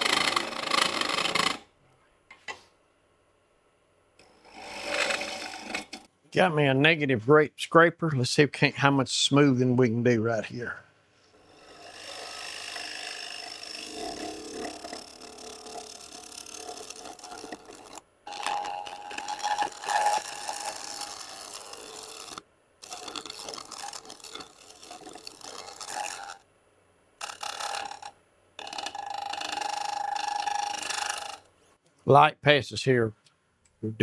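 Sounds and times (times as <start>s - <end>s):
scraper on spinning wooden bowl: 0.0s - 1.6s, 4.6s - 6.1s, 11.4s - 26.4s, 27.2s - 31.5s.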